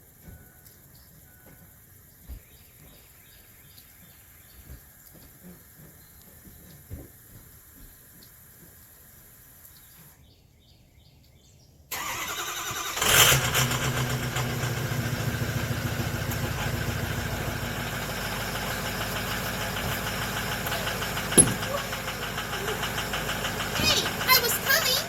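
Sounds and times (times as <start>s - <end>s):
diesel engine starting and idling: 11.9s - 25.0s
starter motor cranking: 11.9s - 25.0s.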